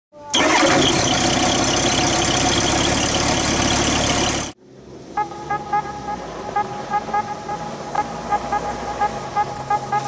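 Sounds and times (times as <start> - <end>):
loud engine-like mechanical noise: 0.3 - 10.0.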